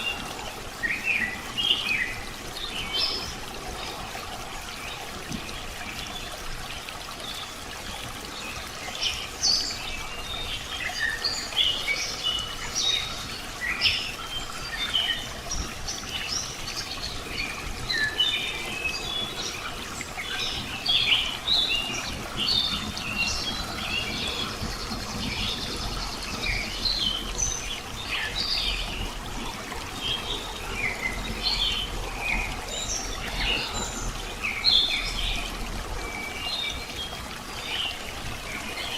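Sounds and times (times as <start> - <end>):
trickle of running water: 0.0 - 38.9.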